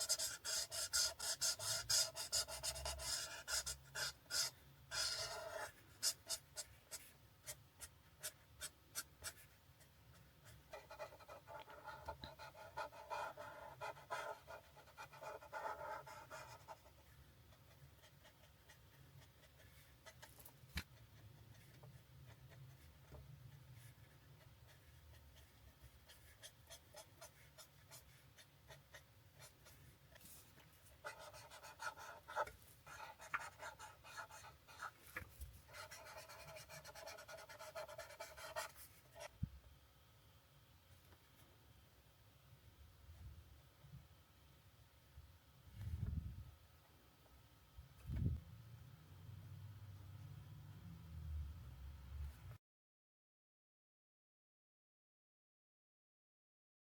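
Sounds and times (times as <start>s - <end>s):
marker rubbing on paper: 0.0s - 9.6s, 10.4s - 17.0s, 23.8s - 35.0s, 35.7s - 39.3s.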